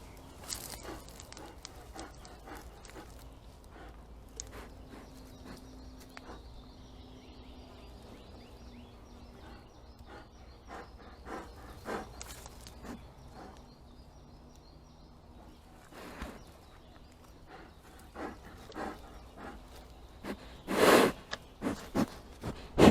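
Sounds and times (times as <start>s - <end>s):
rustling: 0.0s - 6.3s, 11.4s - 13.6s
bear breathing and sniffing: 0.0s - 14.3s, 15.4s - 22.9s
bear huffs: 0.3s - 14.0s, 15.5s - 22.9s.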